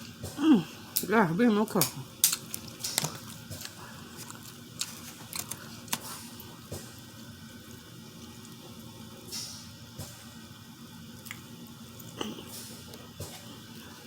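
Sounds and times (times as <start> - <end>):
wet squishy eating sounds: 2.2 - 7.0, 11.1 - 14.0.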